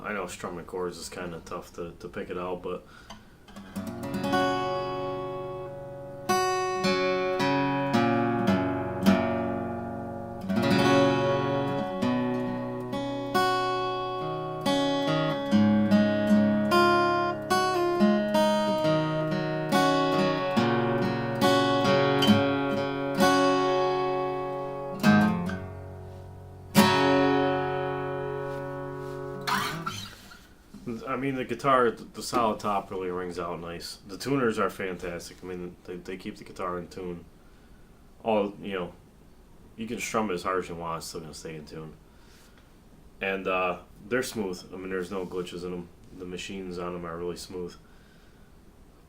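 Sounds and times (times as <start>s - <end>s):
acoustic guitar strummed and picked: 3.0s - 30.6s.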